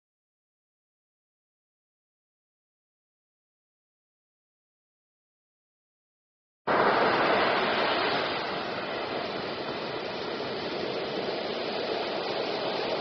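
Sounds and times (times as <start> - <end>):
running water rushing: 6.7 - 13.0.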